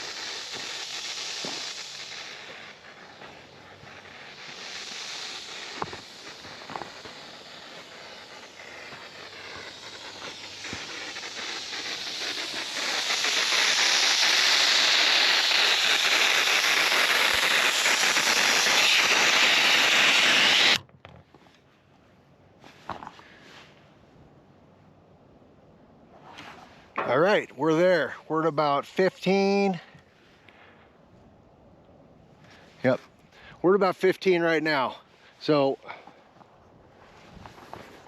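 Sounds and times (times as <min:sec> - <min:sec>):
air hissing out of tires: 0:00.0 - 0:20.8, 0:32.3 - 0:38.0.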